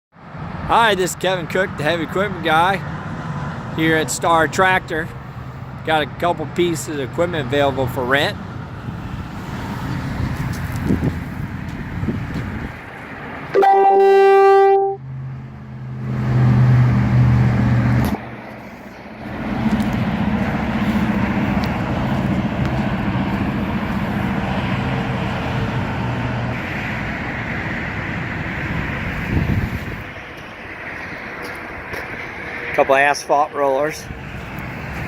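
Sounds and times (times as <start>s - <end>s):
engine running: 1.4s - 32.9s, 33.9s - 35.0s
horn sounding: 13.5s - 15.1s.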